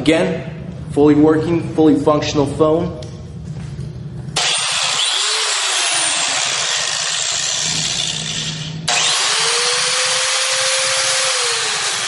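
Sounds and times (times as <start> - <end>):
angle grinder grinding metal: 4.4 - 12.0.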